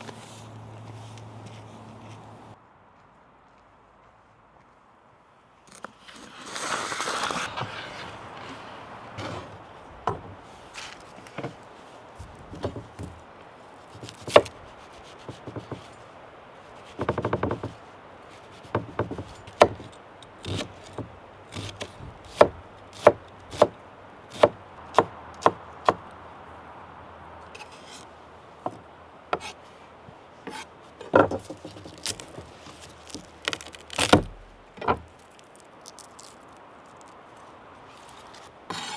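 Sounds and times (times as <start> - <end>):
knife scraping board: 6.5 - 9.6, 27.6 - 28.1, 29.4 - 29.6, 30.5 - 30.7, 38.4 - 38.9.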